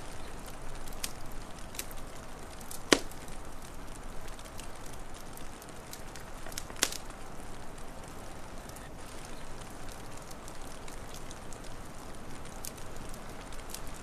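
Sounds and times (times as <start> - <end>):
fire popping: 0.0 - 14.0
wood fire crackling: 0.0 - 14.0.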